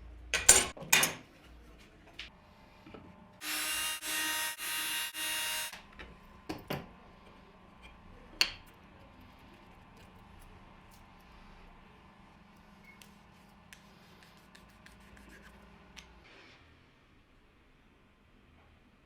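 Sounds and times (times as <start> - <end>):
tools clicking and knocking: 0.4 - 1.2
power drill running: 3.4 - 5.8.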